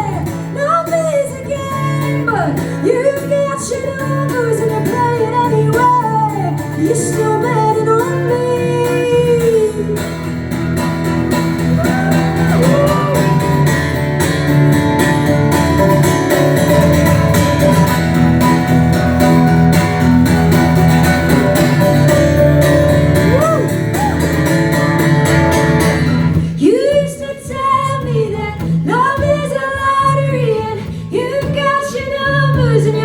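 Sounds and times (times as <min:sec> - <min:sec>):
electric guitar with bent notes: 0:00.0 - 0:33.0
live rock band playing: 0:04.1 - 0:27.3.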